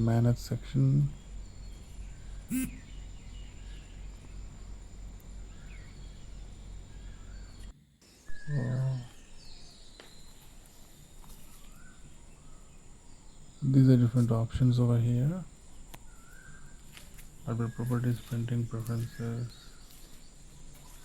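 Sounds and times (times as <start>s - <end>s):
low hum: 0.0s - 9.8s
faint high whine: 0.0s - 21.0s
short voice sounds: 2.5s - 2.9s.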